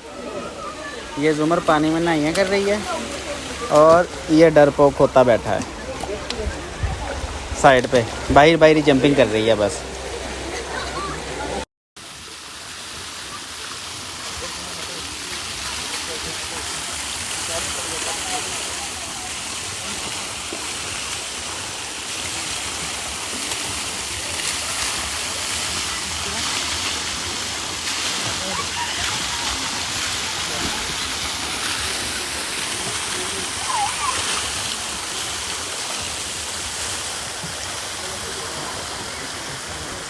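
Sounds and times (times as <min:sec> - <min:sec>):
running water rushing: 0:00.0 - 0:40.0.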